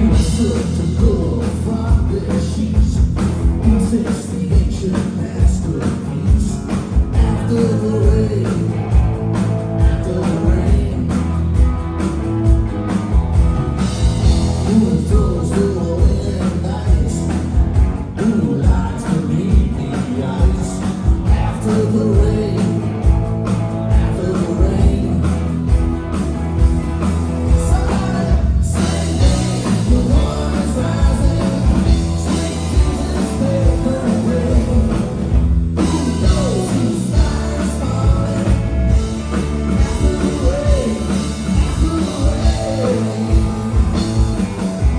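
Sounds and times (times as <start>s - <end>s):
electric guitar: 0.0s - 44.9s
steady drum beat: 0.0s - 44.9s
person singing: 27.5s - 35.2s, 35.8s - 38.9s, 39.7s - 43.9s.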